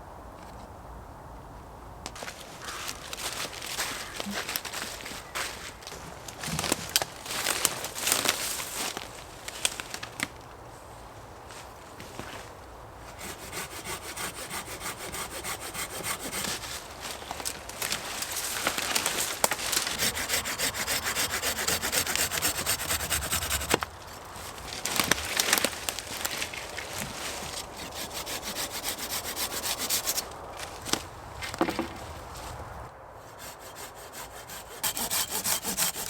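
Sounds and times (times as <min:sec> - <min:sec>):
hand saw cutting wood: 0:13.1 - 0:16.8, 0:19.6 - 0:24.8, 0:27.4 - 0:30.3, 0:33.2 - 0:36.0.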